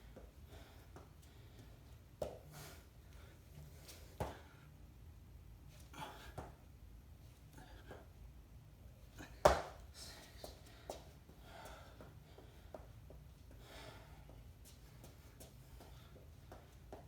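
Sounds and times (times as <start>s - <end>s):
person breathing heavily: 9.9s - 12.9s, 13.5s - 16.3s.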